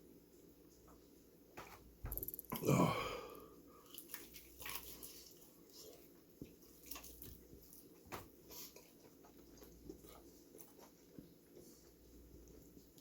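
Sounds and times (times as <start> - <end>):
faint chewing with mouth smacks: 3.8 - 13.0.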